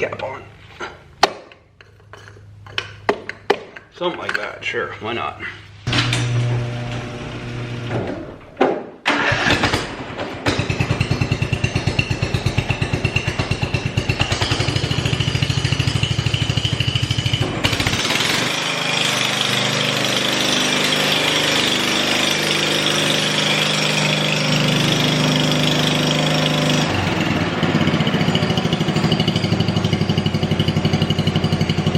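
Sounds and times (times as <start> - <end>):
lawnmower engine cranking and running: 9.0 - 9.9, 10.5 - 31.9.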